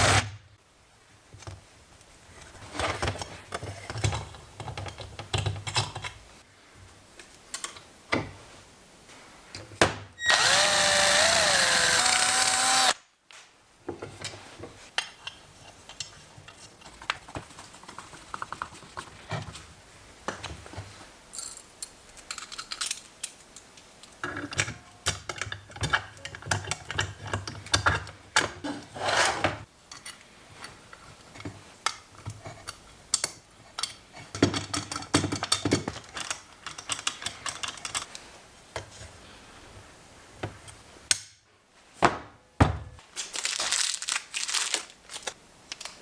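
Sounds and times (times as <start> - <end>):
power tool motor: 10.2 - 13.0.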